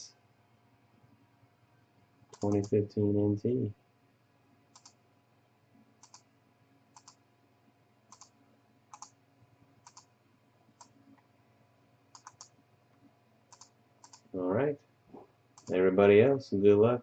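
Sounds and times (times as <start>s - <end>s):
low steady hum: 0.0s - 17.0s
faint sharp clicks: 13.5s - 14.3s.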